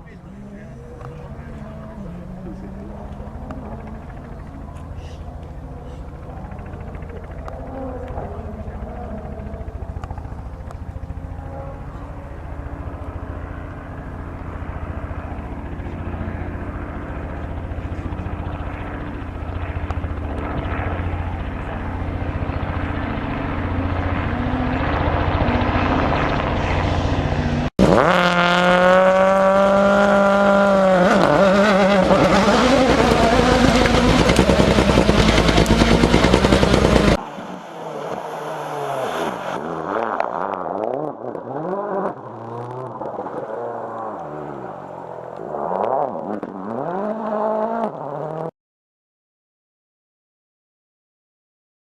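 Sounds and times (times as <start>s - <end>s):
rally car engine approaching: 0.0s - 48.5s
car passing close: 21.2s - 48.5s.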